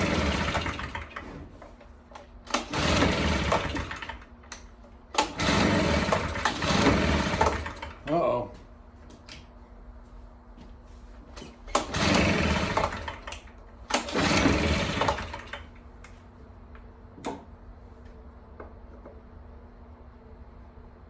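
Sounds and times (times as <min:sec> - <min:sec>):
leaf blower engine cranking: 0:00.0 - 0:01.4, 0:02.2 - 0:04.6, 0:05.2 - 0:08.2, 0:11.7 - 0:15.7
recoil starter pull: 0:00.0 - 0:08.1, 0:11.4 - 0:15.8.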